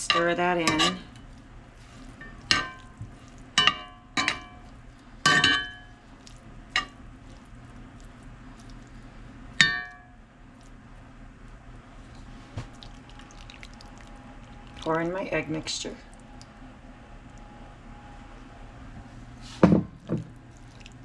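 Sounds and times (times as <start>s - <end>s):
metal utensil clanking against pan: 0.0s - 1.0s, 2.2s - 2.8s, 3.6s - 4.6s, 5.3s - 5.9s.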